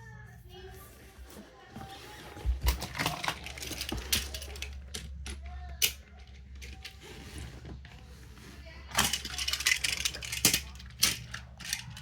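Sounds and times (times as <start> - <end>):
low steady hum: 0.0 - 12.0
plastic toy trains clicking: 2.7 - 7.4, 8.9 - 12.0.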